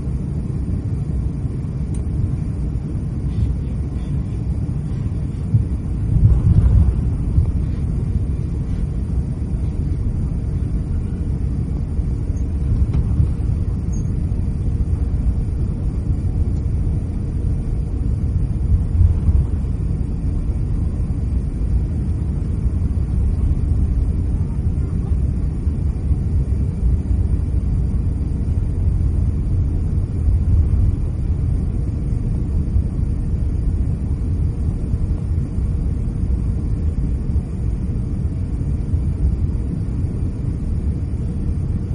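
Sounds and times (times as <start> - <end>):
aircraft cabin rumble: 0.0 - 41.9.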